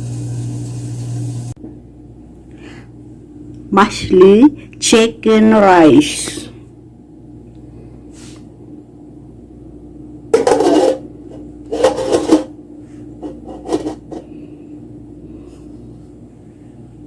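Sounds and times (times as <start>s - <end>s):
steady low hum: 0.0s - 17.0s
utensil scraping cookware: 10.4s - 11.0s, 11.7s - 12.5s, 13.2s - 14.3s.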